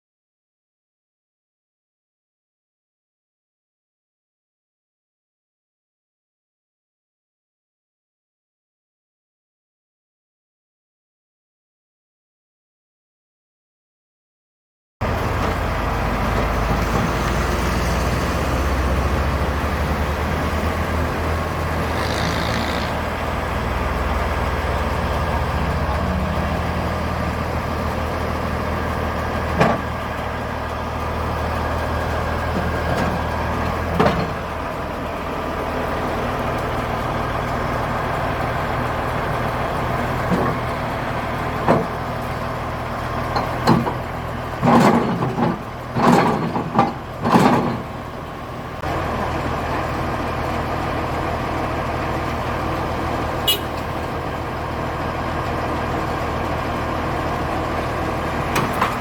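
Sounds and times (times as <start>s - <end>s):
heavy diesel engine running: 15.0s - 59.0s.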